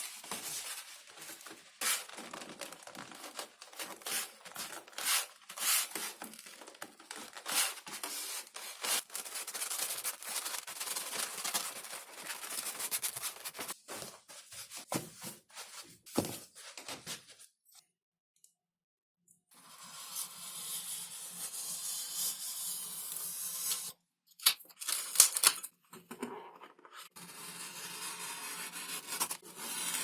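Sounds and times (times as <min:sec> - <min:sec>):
scraping foam sheet: 0:00.0 - 0:06.5.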